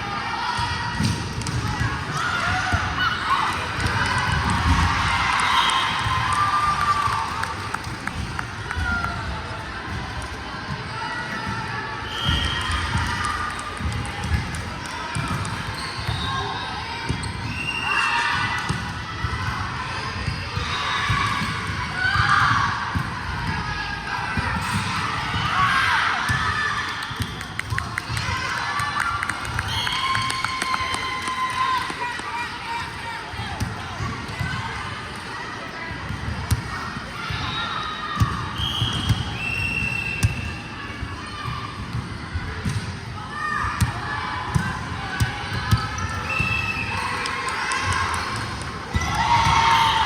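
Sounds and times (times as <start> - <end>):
echoing din of people: 0.0 - 50.0
shouts and chatter: 0.0 - 50.0
balls bouncing: 0.6 - 10.8.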